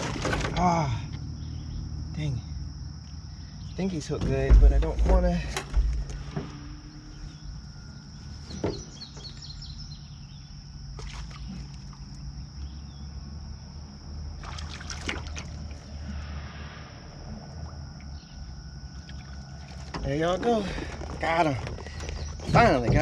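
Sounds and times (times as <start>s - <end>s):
water sloshing against boat: 3.8s - 12.7s, 14.3s - 16.3s, 17.6s - 23.0s.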